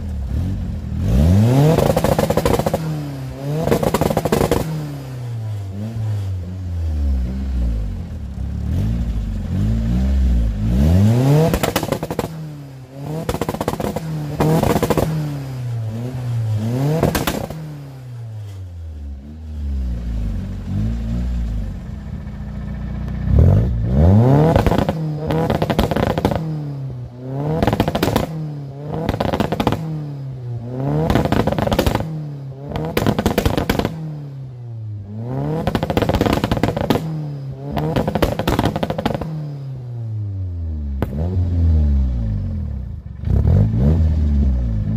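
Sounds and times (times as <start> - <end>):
engine revving against limiter: 0.3 - 8.0, 8.6 - 18.1, 23.2 - 34.4, 35.0 - 44.9
exhaust pops and bangs: 1.7 - 4.8, 11.4 - 15.4, 16.9 - 17.7, 24.5 - 26.7, 27.5 - 30.0, 31.0 - 34.2, 35.5 - 39.5, 41.0 - 41.4.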